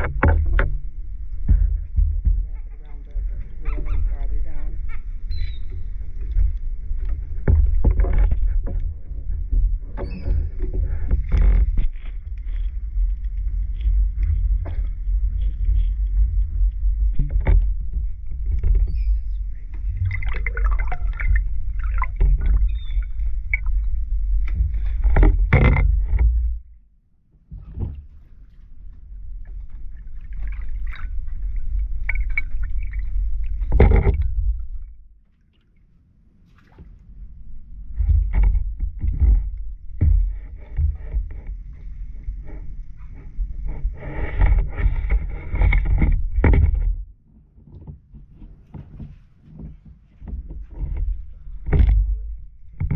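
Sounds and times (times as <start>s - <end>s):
seagulls calling: 22.6s - 23.0s.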